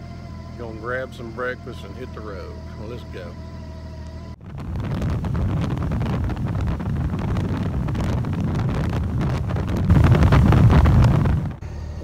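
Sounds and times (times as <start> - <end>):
low road rumble: 0.0 - 12.0
wind buffeting microphone: 4.4 - 11.6.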